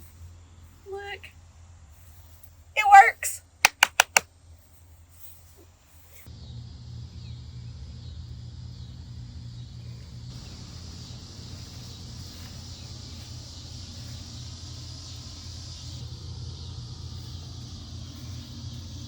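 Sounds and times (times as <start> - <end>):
running car rumble: 6.4 - 19.0.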